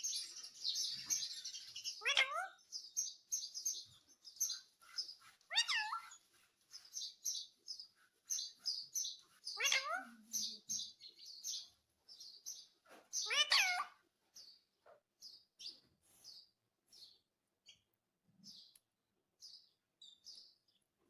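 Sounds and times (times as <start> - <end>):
parrot chirping: 0.0 - 11.8, 12.4 - 14.1.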